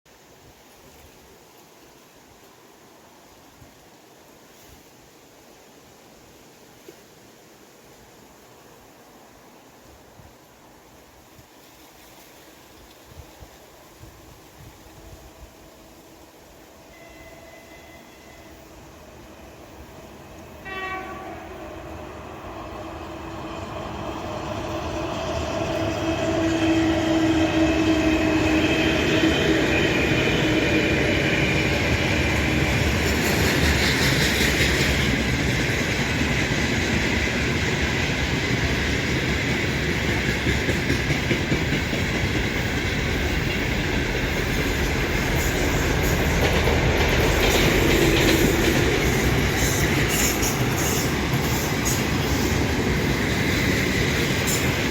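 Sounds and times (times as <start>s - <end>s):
train horn toot: 15.1s - 19.8s, 20.5s - 22.4s, 25.7s - 30.4s
train wheel rumble and clatter: 22.3s - 54.9s.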